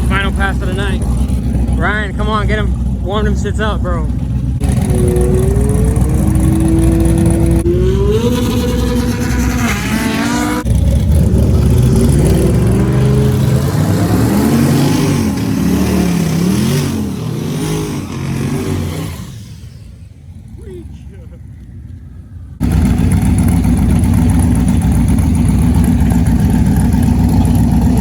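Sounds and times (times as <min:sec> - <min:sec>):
car engine revving hard: 0:00.0 - 0:21.0.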